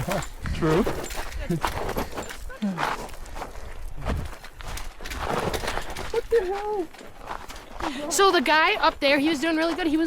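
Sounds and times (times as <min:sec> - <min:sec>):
boots crunching on loose trail: 0:00.0 - 0:10.0.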